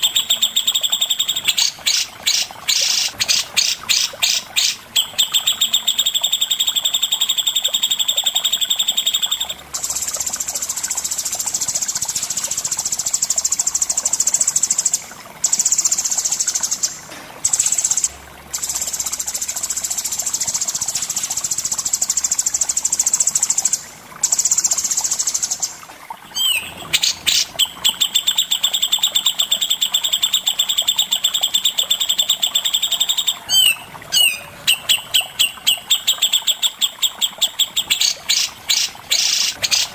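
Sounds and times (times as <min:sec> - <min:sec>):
songbird fast trills: 0:26.3 - 0:39.9.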